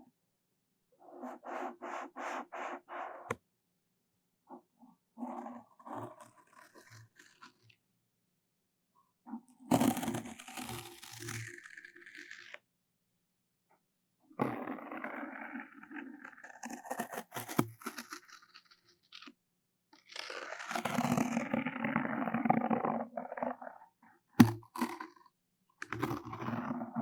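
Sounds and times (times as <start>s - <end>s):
scratchy rubbing and crinkling: 1.0s - 3.3s, 4.5s - 7.7s, 9.7s - 12.6s, 14.6s - 19.4s, 20.0s - 25.2s, 25.8s - 27.0s.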